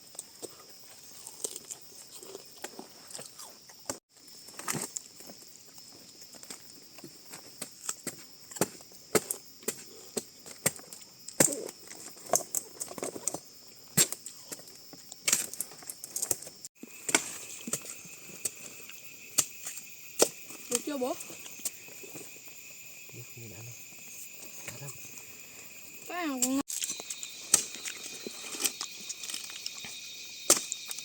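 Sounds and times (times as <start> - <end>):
low steady insect tone: 0.0 - 31.0
sharp knocks and cracks: 7.0 - 18.6, 29.2 - 31.0
high-pitched insect drone: 10.9 - 31.0.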